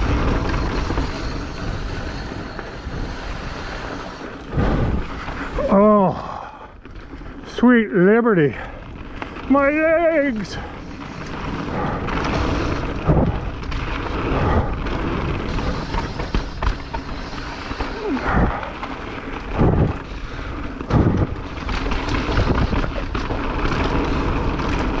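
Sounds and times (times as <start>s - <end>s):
wind buffeting microphone: 0.0s - 6.5s, 10.3s - 23.2s
tyres rumbling on trail: 0.0s - 25.0s
bike knocking over bumps: 10.7s - 25.0s.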